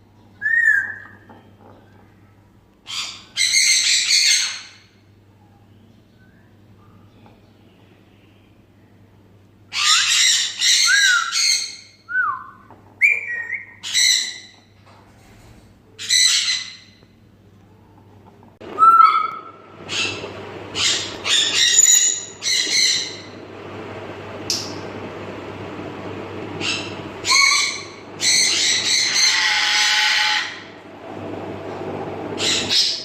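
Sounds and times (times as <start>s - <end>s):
parrots screeching and whistling: 0.4s - 1.2s, 2.9s - 4.8s, 9.7s - 12.4s, 13.0s - 14.6s, 16.0s - 17.0s, 18.8s - 23.4s, 26.6s - 30.7s, 32.4s - 33.0s.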